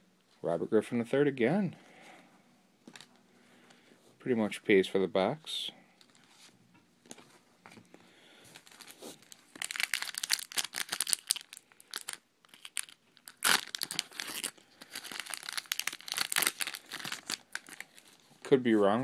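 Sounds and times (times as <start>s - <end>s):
plastic wrapper crinkling and tearing: 8.5s - 18.5s.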